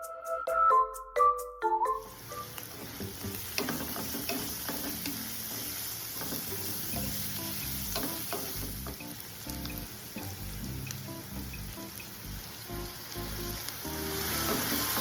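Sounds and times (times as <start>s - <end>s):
food sizzling in oil: 2.1s - 15.0s.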